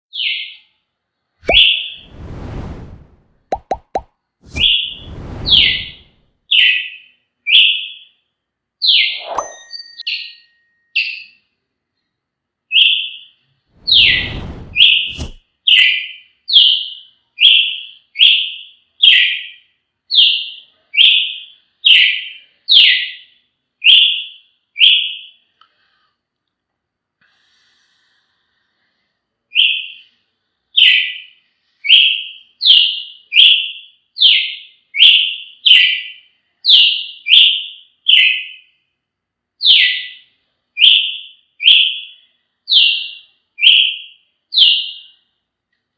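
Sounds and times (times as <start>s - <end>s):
bird singing whistled notes: 1.4s - 2.2s, 4.5s - 8.1s, 12.7s - 18.4s
low rumble: 2.0s - 3.4s, 4.5s - 6.2s, 13.8s - 15.4s.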